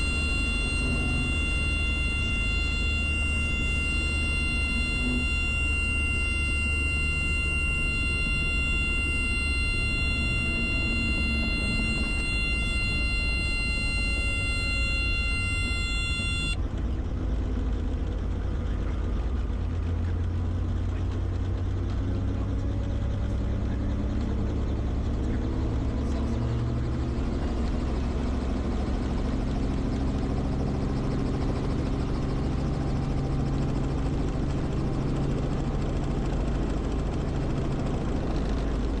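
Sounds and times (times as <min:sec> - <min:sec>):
high electronic tone: 0:00.0 - 0:16.6
helicopter engine and rotor drone: 0:00.0 - 0:39.0.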